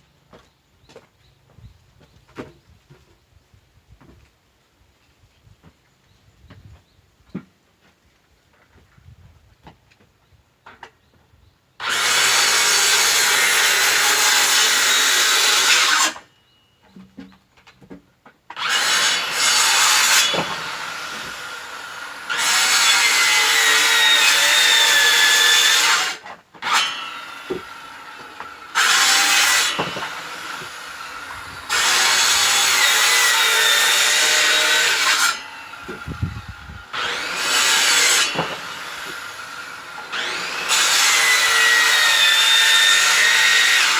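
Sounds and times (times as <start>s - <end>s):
electric saw cutting wood: 11.8s - 16.3s, 18.5s - 43.9s.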